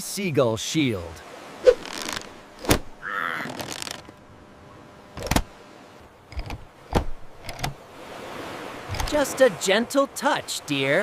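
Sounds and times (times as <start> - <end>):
mechanical clicks and knocks: 6.3 - 7.8, 8.9 - 9.2.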